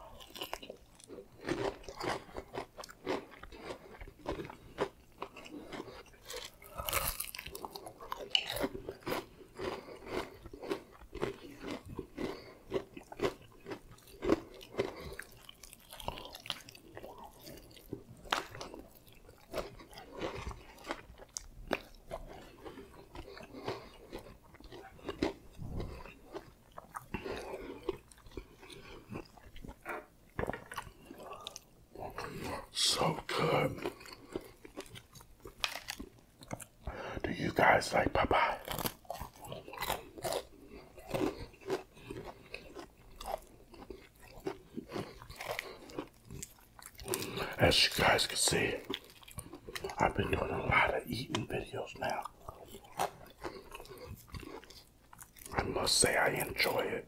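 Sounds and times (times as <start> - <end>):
man chewing fried chicken: 0.0 - 57.0
crisp crunches of breading: 0.1 - 29.8, 32.2 - 36.9, 37.6 - 57.0.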